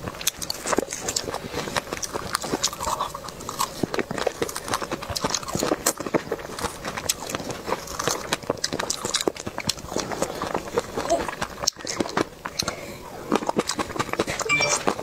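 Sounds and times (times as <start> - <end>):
chewing strawberries: 0.0 - 15.0.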